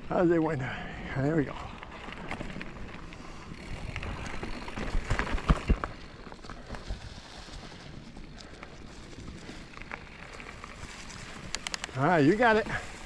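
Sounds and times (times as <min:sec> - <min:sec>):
bike tyres on rough trail: 0:00.0 - 0:13.0
bike clunking over roots: 0:01.8 - 0:13.0.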